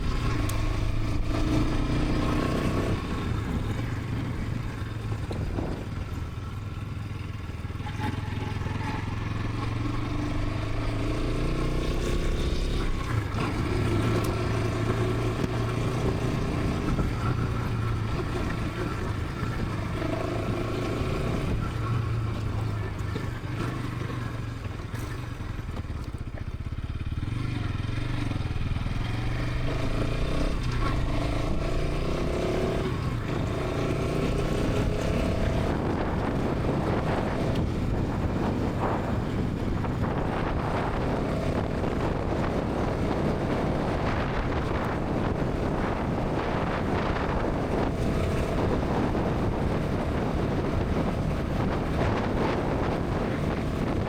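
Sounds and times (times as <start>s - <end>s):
wind rushing over microphone: 0.0s - 7.0s, 9.3s - 24.4s, 29.3s - 54.0s
motorcycle engine at speed: 0.0s - 54.0s.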